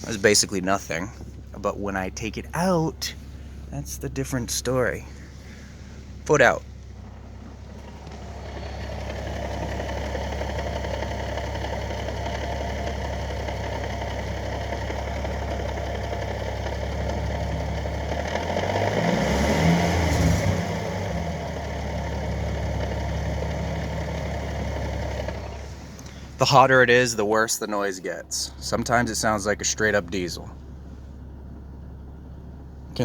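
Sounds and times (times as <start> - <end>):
drivetrain rattling chatter: 0.0 - 13.8, 24.2 - 30.8
car engine idling: 0.0 - 33.0.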